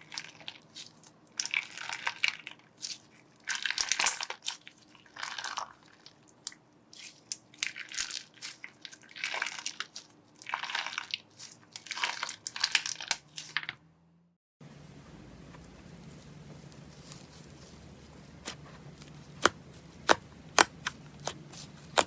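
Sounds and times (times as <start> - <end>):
crunchy slime crackling: 0.0 - 13.8.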